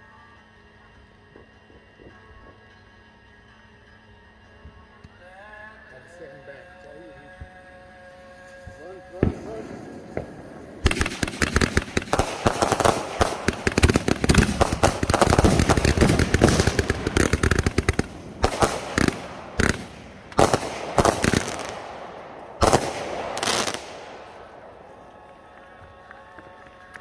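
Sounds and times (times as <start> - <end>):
firework launches and crackling: 8.4 - 25.2.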